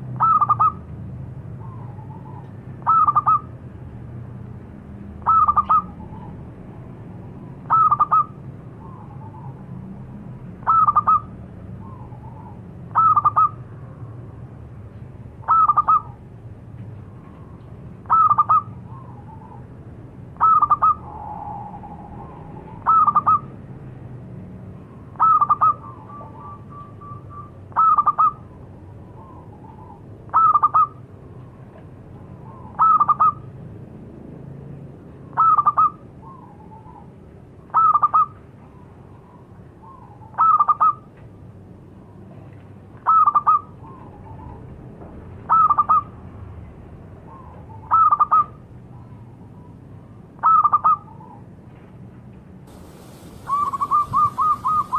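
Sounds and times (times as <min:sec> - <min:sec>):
dove cooing: 0:07.7 - 0:09.5, 0:52.7 - 0:54.9.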